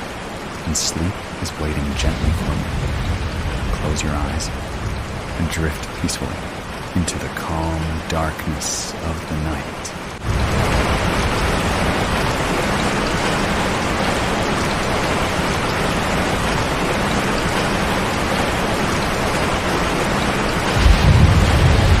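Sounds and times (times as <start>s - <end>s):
running water: 0.0s - 22.0s
steady rain: 0.0s - 22.0s
low rumble: 2.0s - 6.8s, 20.8s - 22.0s.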